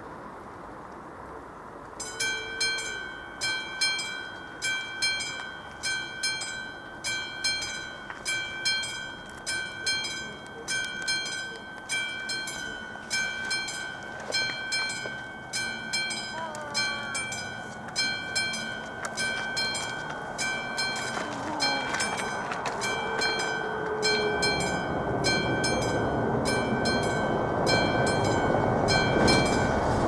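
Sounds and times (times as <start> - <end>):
level crossing warning bell: 2.0 - 30.0.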